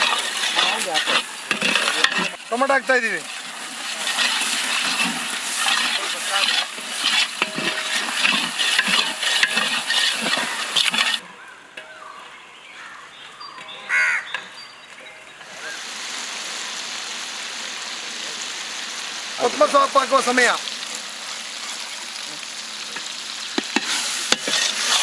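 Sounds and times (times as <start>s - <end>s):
spoon scraping pot: 0.0s - 2.5s, 3.2s - 11.2s, 23.6s - 25.0s
steady hiss: 0.0s - 11.2s, 14.9s - 25.0s
tomatoes sizzling in oil: 0.0s - 11.2s, 13.9s - 25.0s.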